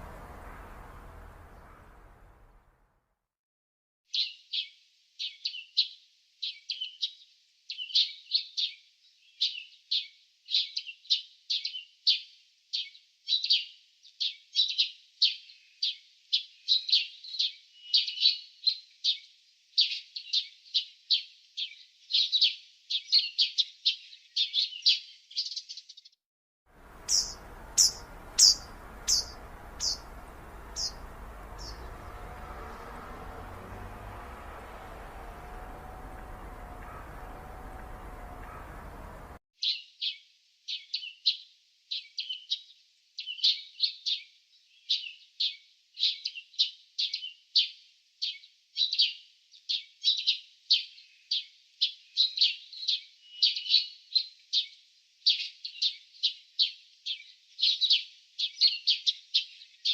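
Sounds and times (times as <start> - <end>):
higher bird chirps: 0.0 - 2.6, 26.8 - 39.4
small birds chirping: 0.0 - 2.6, 4.1 - 26.1, 26.8 - 59.9
outdoor background hiss: 0.0 - 2.8, 26.8 - 39.4.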